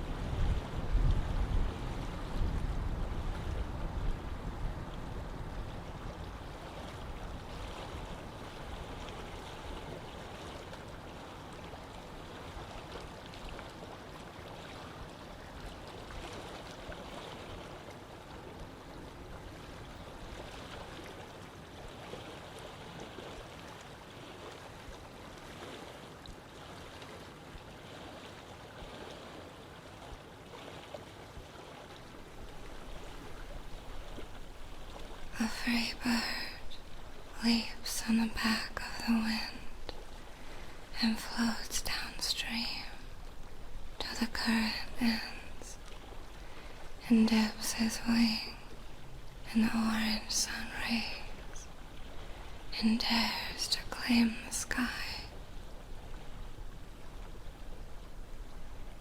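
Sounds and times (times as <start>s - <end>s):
wind rumble on microphone: 0.0s - 23.3s
running water: 29.9s - 59.0s.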